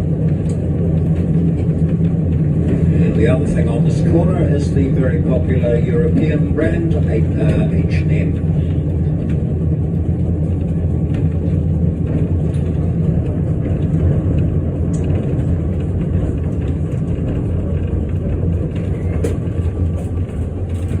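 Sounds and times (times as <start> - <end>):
tram running rumble: 0.0 - 21.0.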